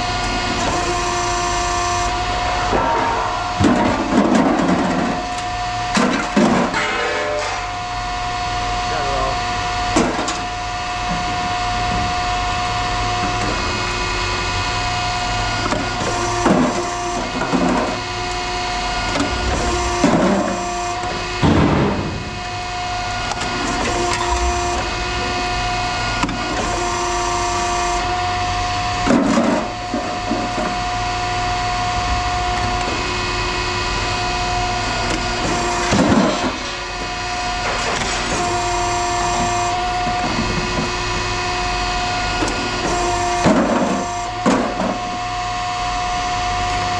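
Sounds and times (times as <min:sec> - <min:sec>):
steady machine hum: 0:00.0 - 0:46.9.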